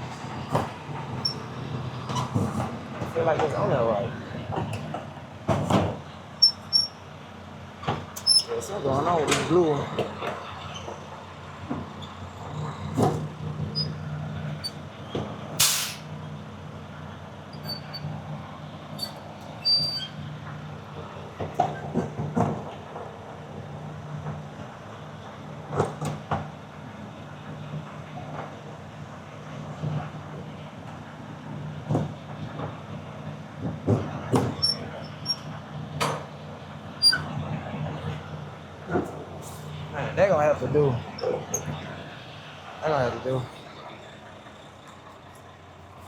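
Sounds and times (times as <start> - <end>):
truck engine idling: 0.0 - 21.5, 32.2 - 46.0
compressed air hissing: 15.6 - 16.1.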